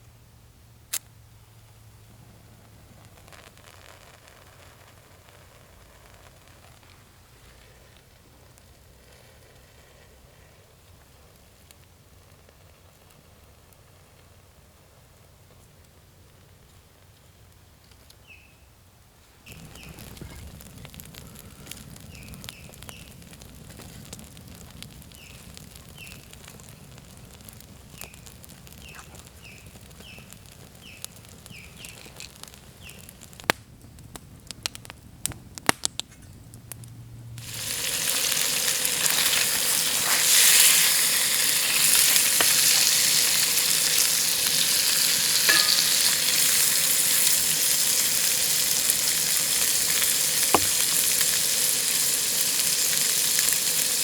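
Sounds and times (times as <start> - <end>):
bacon sizzling in a pan: 37.4 - 54.0.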